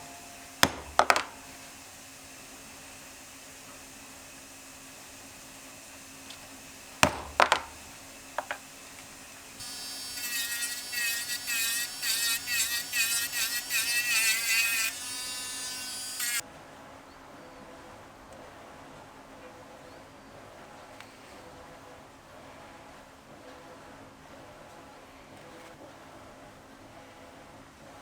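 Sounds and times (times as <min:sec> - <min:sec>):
handheld electric tool buzzing: 0:00.0 - 0:16.4.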